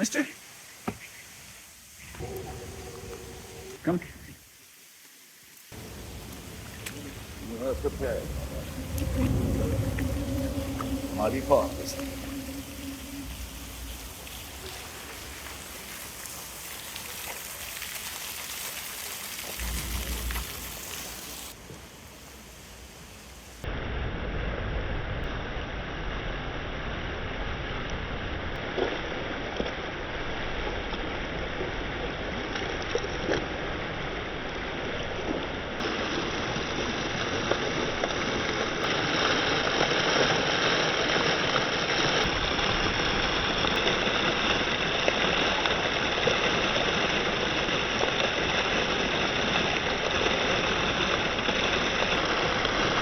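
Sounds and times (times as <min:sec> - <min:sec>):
heavy rain hissing: 0:00.0 - 0:53.0
faint raindrop ticks: 0:05.0 - 0:21.8.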